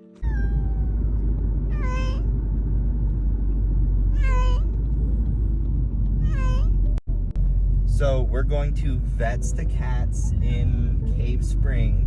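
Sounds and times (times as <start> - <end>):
low rumble of moving car: 0.0 - 12.0
cat meowing: 0.2 - 1.0, 1.7 - 2.3, 4.1 - 4.7, 6.2 - 6.8.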